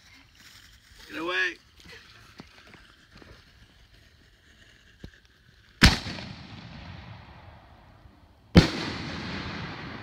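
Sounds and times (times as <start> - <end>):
fireworks bangs: 5.8 - 7.8, 8.5 - 10.0.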